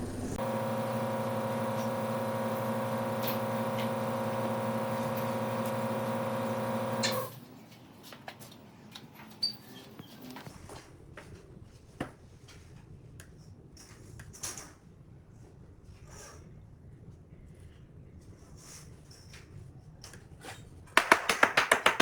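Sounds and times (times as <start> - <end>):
power tool motor running: 0.0 - 7.4.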